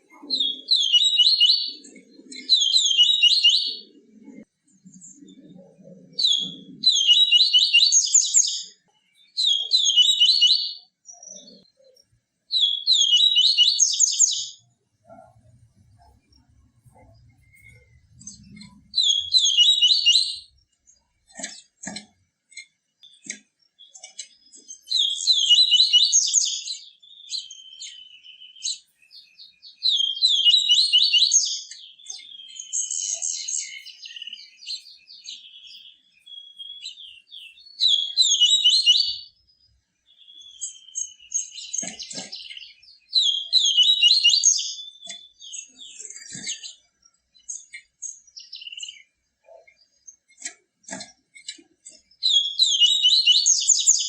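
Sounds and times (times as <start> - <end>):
soft bird twitters: 0.0 - 39.4.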